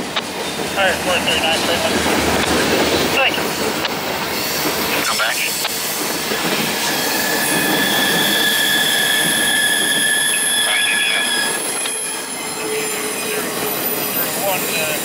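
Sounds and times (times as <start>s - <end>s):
steel wheels squealing on rail: 4.2s - 15.0s.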